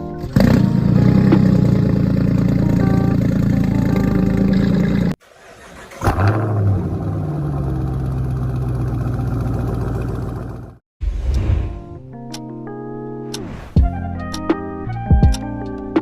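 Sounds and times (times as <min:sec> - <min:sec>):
car engine cold-starting: 0:00.2 - 0:10.8
engine fast idle: 0:00.5 - 0:10.8.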